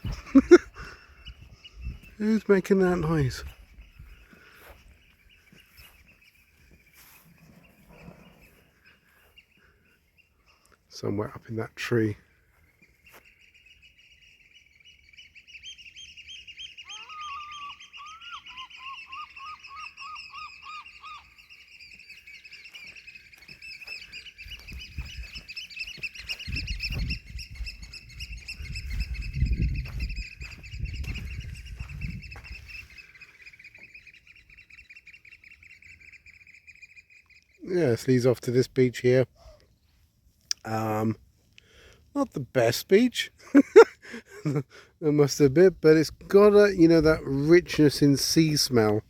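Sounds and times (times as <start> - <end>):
birds chirping: 0.0 - 49.0
lower repeated bird notes: 0.0 - 49.0
low rumbling thumps: 26.4 - 32.5.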